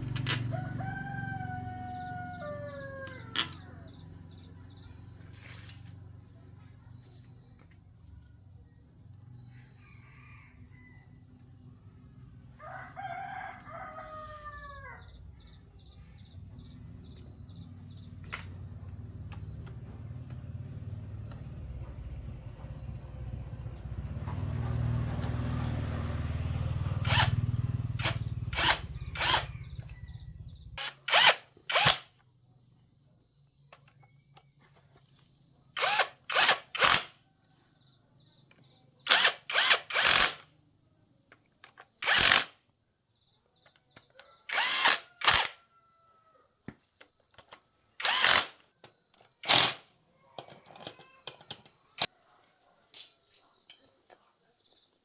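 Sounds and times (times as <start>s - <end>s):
power tool running in bursts: 24.3s - 29.9s, 30.8s - 32.0s, 35.8s - 37.1s, 39.1s - 40.4s, 42.0s - 42.5s, 44.5s - 45.6s, 48.0s - 48.6s, 49.4s - 49.8s.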